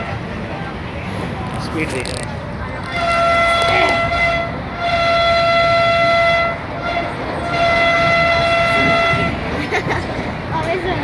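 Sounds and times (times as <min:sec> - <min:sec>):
rumble of running train: 0:00.0 - 0:11.0
train horn blasts: 0:02.9 - 0:09.5.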